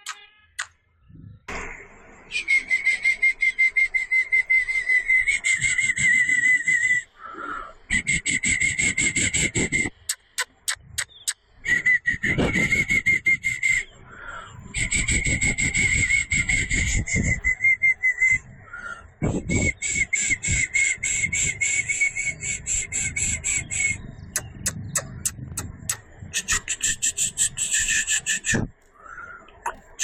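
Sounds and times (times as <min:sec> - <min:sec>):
sharp clicks: 0:00.0 - 0:00.8, 0:09.9 - 0:11.4, 0:24.3 - 0:26.8
animal chirping calls: 0:09.0 - 0:11.5, 0:24.3 - 0:28.7.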